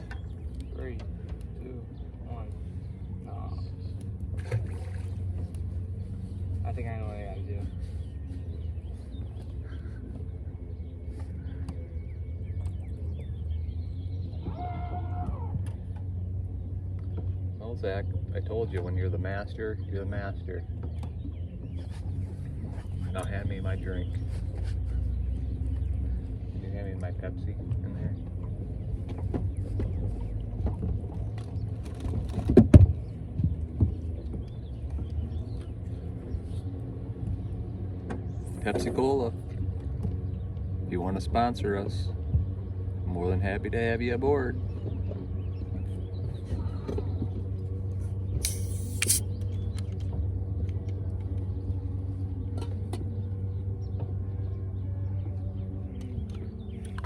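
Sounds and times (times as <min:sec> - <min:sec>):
steady low rumble: 0:00.0 - 0:32.2
knocks and clatter in boat: 0:00.0 - 0:48.4, 0:52.3 - 0:57.0
short hissing burst: 0:48.4 - 0:49.2
motor humming: 0:48.4 - 0:49.4.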